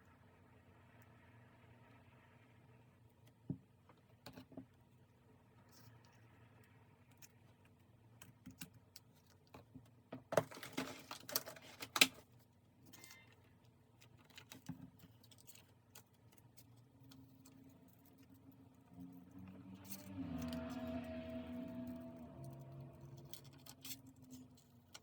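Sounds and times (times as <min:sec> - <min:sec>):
rustling and crinkling: 0:03.2 - 0:21.2.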